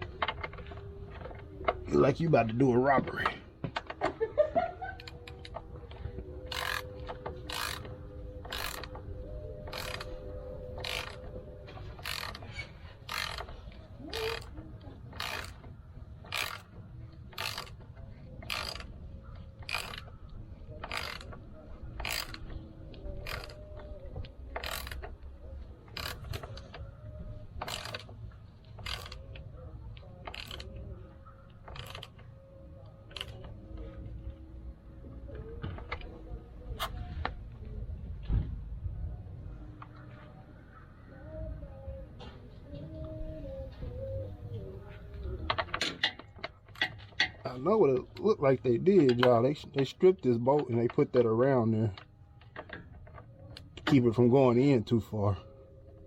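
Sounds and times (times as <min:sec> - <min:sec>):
ratchet wrench clicking: 0:06.5 - 0:09.0, 0:09.6 - 0:11.3, 0:12.0 - 0:14.5, 0:15.1 - 0:15.6, 0:16.2 - 0:16.7, 0:17.3 - 0:19.0, 0:19.6 - 0:20.1, 0:20.8 - 0:21.4, 0:22.0 - 0:22.6, 0:23.2 - 0:23.6, 0:24.5 - 0:25.2, 0:25.9 - 0:26.7, 0:27.6 - 0:28.1, 0:28.7 - 0:29.4, 0:30.2 - 0:30.8, 0:31.6 - 0:32.2, 0:33.1 - 0:33.5.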